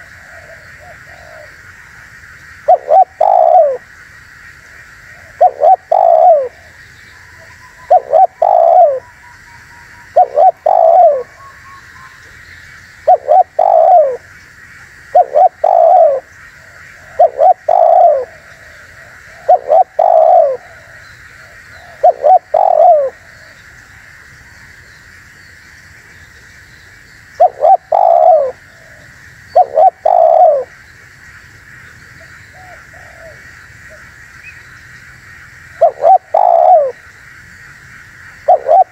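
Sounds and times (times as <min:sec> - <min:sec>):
dove cooing: 0:00.0 - 0:01.6, 0:02.6 - 0:03.8, 0:05.1 - 0:09.2, 0:09.9 - 0:11.5, 0:13.0 - 0:14.3, 0:15.1 - 0:23.6, 0:27.4 - 0:30.7, 0:32.5 - 0:34.1, 0:35.8 - 0:37.0, 0:38.4 - 0:38.9.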